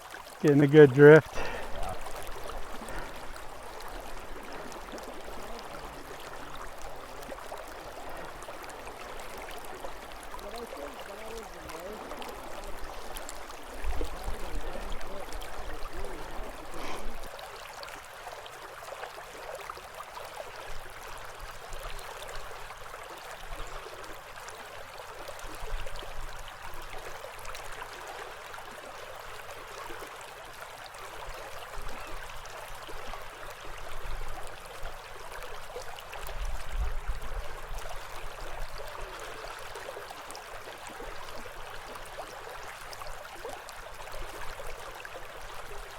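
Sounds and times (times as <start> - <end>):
river current rushing: 0.0 - 18.4.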